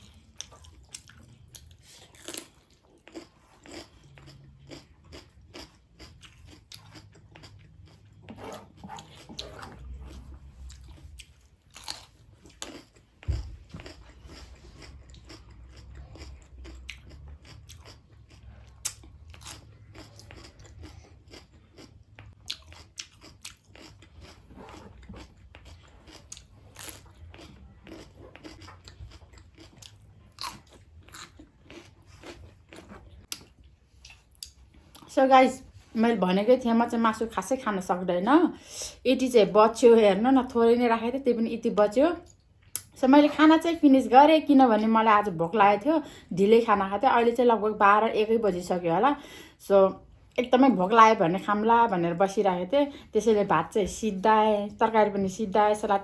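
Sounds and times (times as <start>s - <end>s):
person chewing food: 0.0s - 35.1s.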